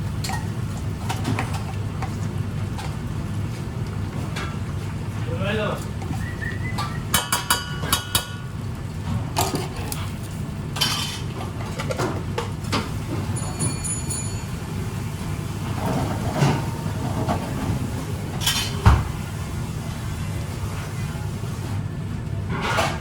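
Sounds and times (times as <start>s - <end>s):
dishes and utensils clinking: 5.9s - 8.5s, 10.8s - 14.7s, 18.4s - 19.0s.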